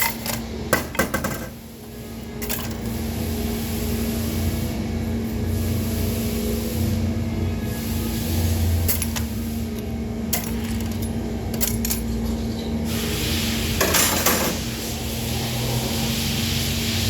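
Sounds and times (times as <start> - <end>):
steady low hum: 0.0 - 13.8
metal tools clinking: 2.4 - 2.9, 8.9 - 9.3, 10.3 - 12.4.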